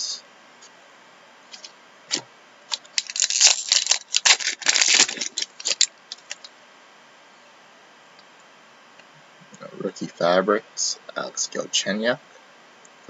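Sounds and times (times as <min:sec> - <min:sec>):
trading cards shuffling: 0:01.5 - 0:06.5.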